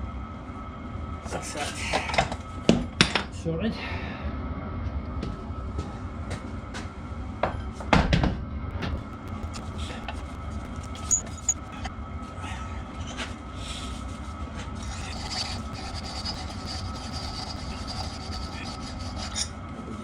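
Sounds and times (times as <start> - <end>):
background hum: 8.0 - 19.8.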